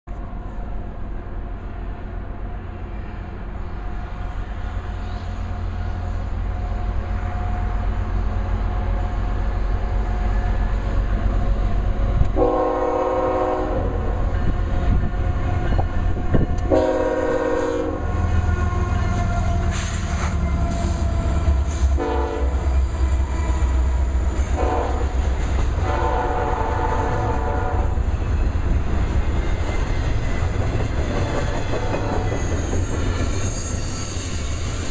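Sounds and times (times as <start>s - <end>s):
locomotive engine rumble: 0.1s - 34.9s
locomotive horn chord blasts: 12.3s - 14.2s, 16.6s - 19.6s, 22.0s - 22.6s, 24.5s - 25.2s, 25.8s - 28.0s.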